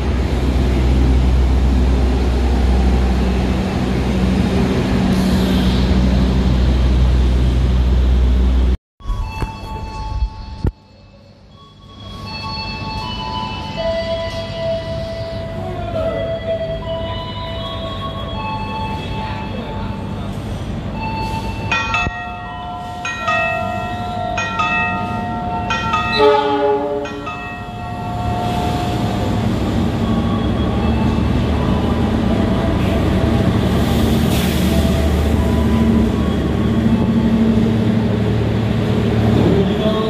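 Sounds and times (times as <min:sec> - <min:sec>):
passenger train rumbling: 0:00.0 - 0:40.0
train horn: 0:26.1 - 0:27.3.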